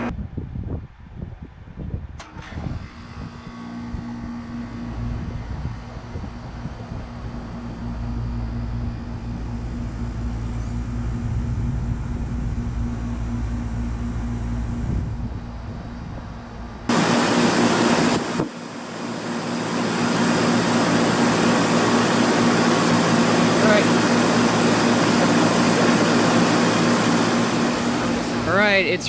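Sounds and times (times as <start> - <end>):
loud rush of air: 0.0 - 29.0
air conditioner humming: 4.6 - 29.0.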